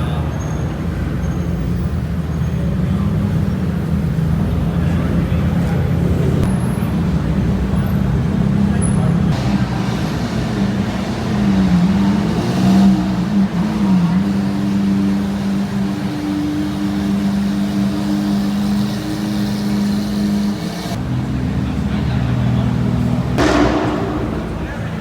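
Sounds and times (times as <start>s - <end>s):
car engine humming: 2.7s - 25.0s.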